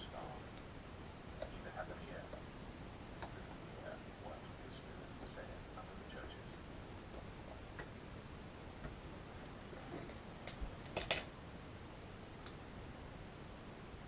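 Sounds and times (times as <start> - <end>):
metal tools clicking and clinking: 10.8 - 11.3.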